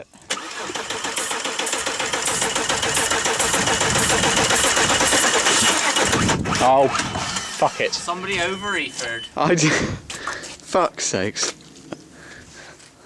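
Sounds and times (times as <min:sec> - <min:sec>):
starter motor cranking: 0:00.3 - 0:09.4
diesel engine running and knocking: 0:00.7 - 0:09.3.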